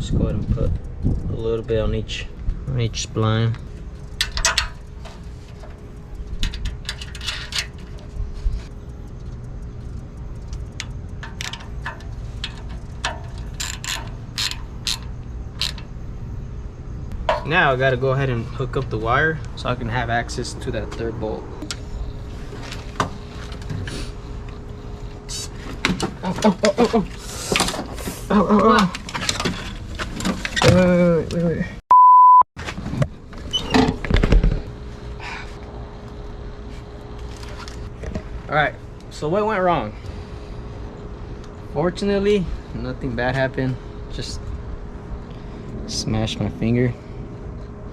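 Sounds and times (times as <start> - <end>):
faint hum: 0.0 - 28.7, 33.0 - 47.9
sharp metallic knocks and clatter: 4.0 - 5.8, 10.8 - 15.9
hand ratchet clicking: 10.4 - 15.9.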